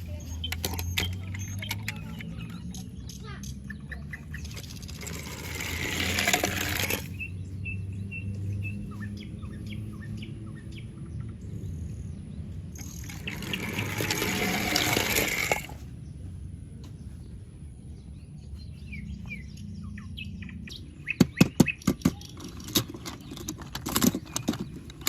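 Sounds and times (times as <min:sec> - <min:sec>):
crackly rustling: 0:04.2 - 0:07.3, 0:22.1 - 0:25.0.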